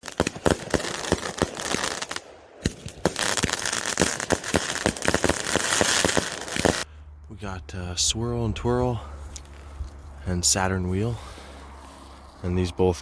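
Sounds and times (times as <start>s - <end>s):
firework crackling pops: 0.0s - 6.9s.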